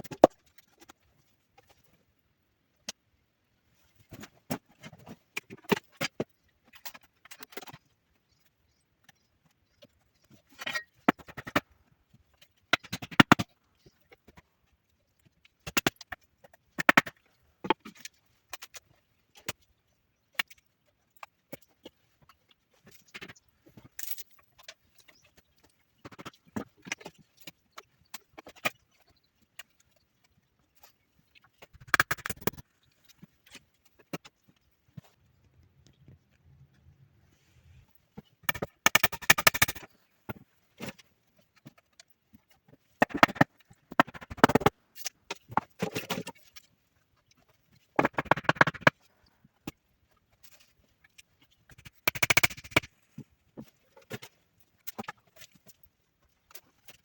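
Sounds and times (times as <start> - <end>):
irregular knocks and clicks: 48.0 - 49.0.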